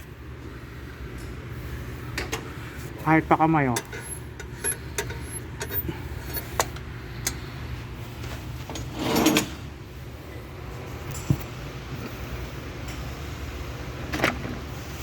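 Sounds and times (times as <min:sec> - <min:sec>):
steady low hum: 0:00.0 - 0:15.0
tools and parts clicking: 0:03.8 - 0:07.4.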